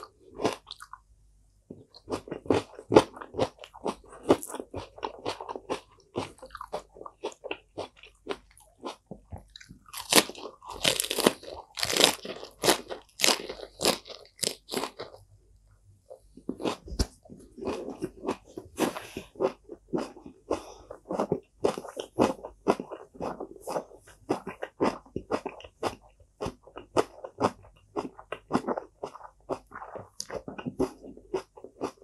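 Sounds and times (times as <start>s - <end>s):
chewing crisp lettuce: 1.8s - 15.2s, 16.4s - 32.0s.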